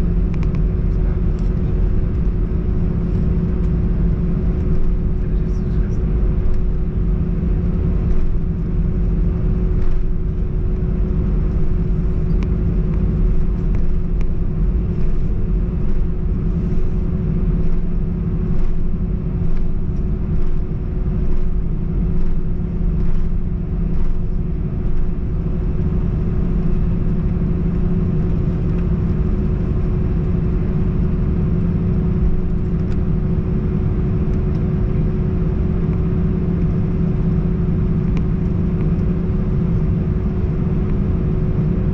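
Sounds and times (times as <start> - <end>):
airplane cabin rumble: 0.0 - 41.9
constant hum: 0.0 - 41.9.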